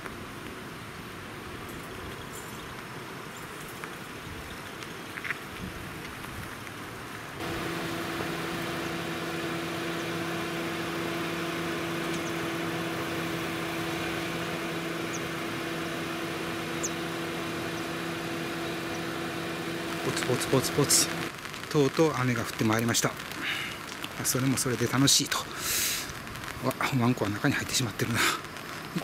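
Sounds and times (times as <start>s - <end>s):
light hiss: 4.7s - 29.0s
car engine idling: 7.4s - 21.3s.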